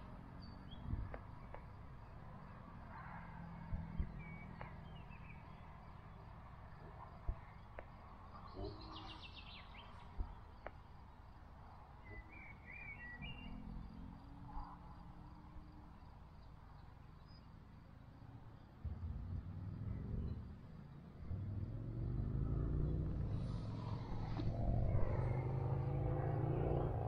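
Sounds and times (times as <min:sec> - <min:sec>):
songbirds chirping and trilling: 0:00.0 - 0:27.0
low rumble: 0:18.8 - 0:27.0.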